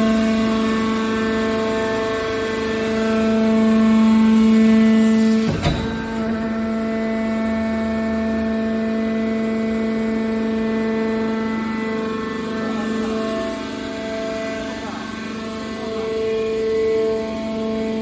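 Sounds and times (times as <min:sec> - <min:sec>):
hydraulic pump hum: 0:00.0 - 0:18.0
sharp metallic knock: 0:05.5 - 0:06.2.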